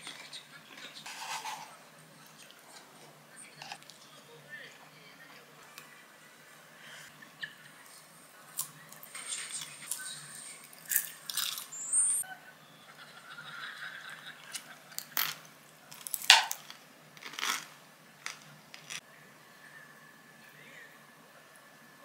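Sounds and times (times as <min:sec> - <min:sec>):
crunchy chewing: 0:16.0 - 0:19.0.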